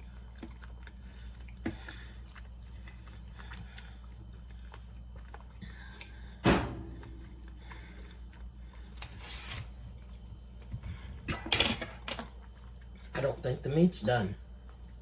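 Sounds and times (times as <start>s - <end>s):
person chewing: 0.0s - 9.0s
steady low hum: 0.0s - 15.0s.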